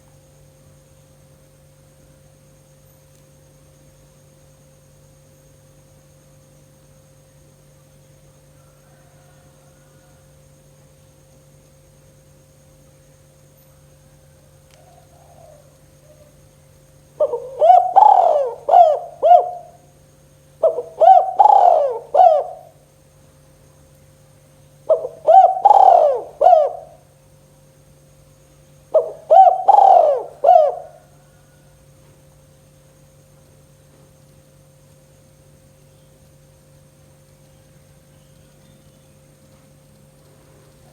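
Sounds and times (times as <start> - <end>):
faint steady hum: 0.0 - 40.9
dove cooing: 14.8 - 16.4, 17.2 - 19.8, 20.6 - 22.8, 24.9 - 27.1, 28.9 - 31.5.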